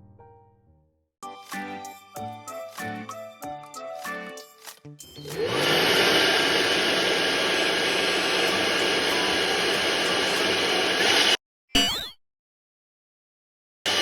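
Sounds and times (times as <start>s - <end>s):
light plucked music: 1.2s - 5.4s
electric blower whining: 5.2s - 11.4s.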